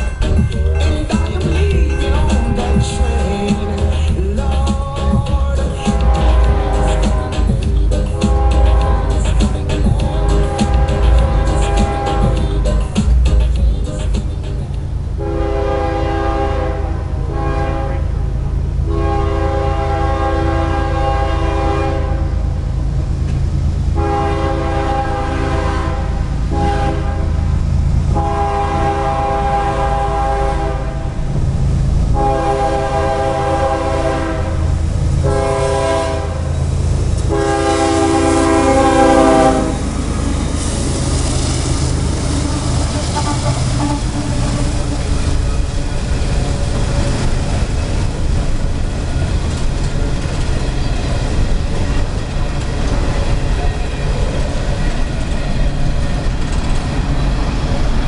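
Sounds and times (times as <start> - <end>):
low rumble of train engines: 0.0 - 58.0
locomotive air horn blasts: 0.9 - 4.5, 5.5 - 14.1, 15.2 - 18.2, 18.8 - 22.5, 24.0 - 31.3, 32.1 - 41.1, 41.9 - 46.1.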